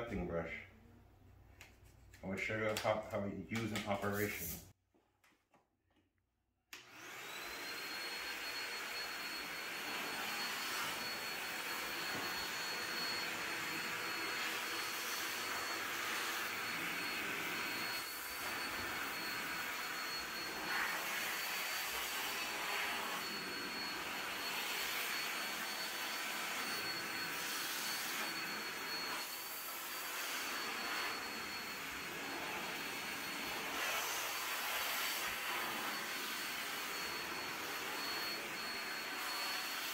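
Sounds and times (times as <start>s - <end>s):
backpack vacuum whining: 6.8s - 39.9s.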